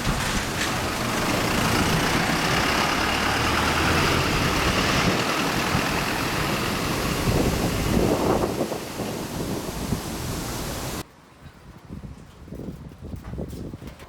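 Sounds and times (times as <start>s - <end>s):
vehicle engine idling: 0.0s - 11.0s
wind noise hiss: 0.0s - 14.0s.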